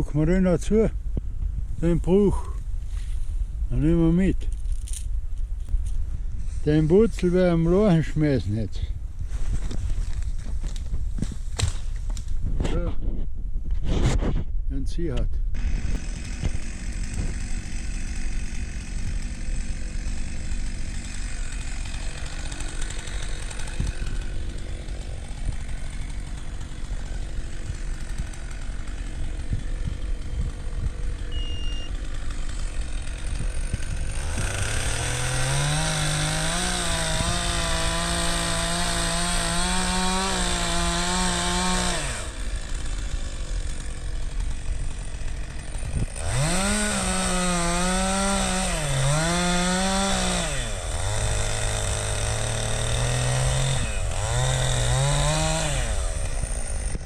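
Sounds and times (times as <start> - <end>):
chainsaw cutting wood: 9.6 - 12.8, 15.6 - 57.0
chainsaw idling and revving: 15.6 - 57.0.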